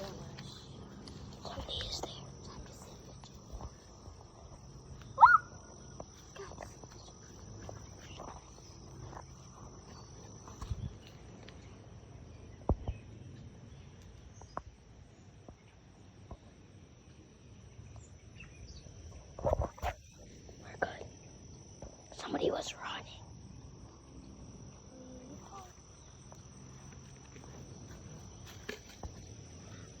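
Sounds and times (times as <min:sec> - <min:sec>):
insect drone: 0:00.0 - 0:30.0.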